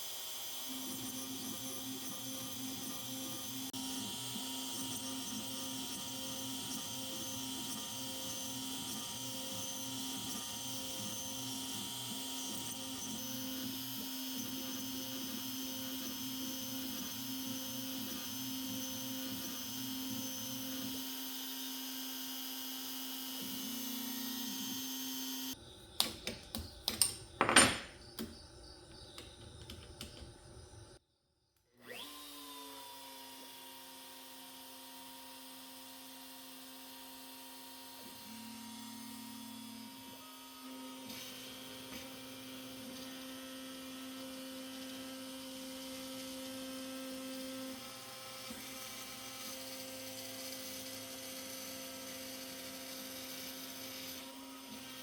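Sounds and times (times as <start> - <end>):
sharp knocks and clatters: 26.0 - 28.4
router spindle milling wood: 40.6 - 55.0.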